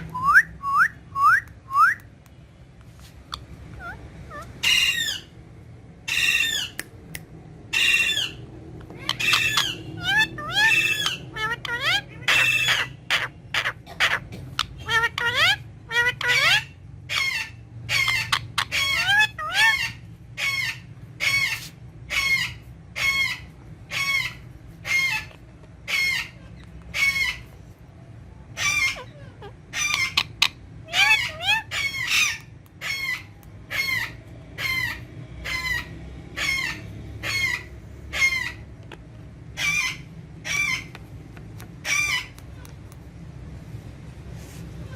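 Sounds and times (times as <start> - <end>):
parakeet shrill calls: 3.3 - 5.4, 6.0 - 6.8, 7.7 - 27.6, 28.5 - 38.7, 39.5 - 40.9, 41.8 - 42.4.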